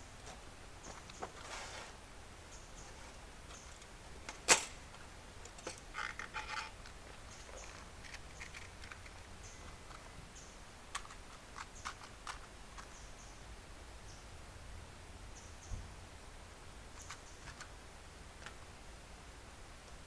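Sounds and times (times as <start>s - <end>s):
sharp clicks and light knocks: 3.5s - 10.1s, 10.9s - 13.0s.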